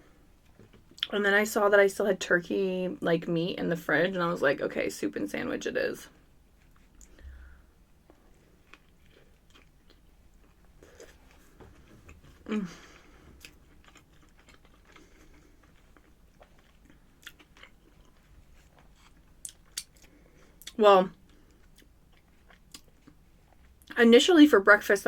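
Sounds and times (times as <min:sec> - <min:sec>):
person chewing and biting: 0:08.5 - 0:12.2, 0:13.3 - 0:23.8.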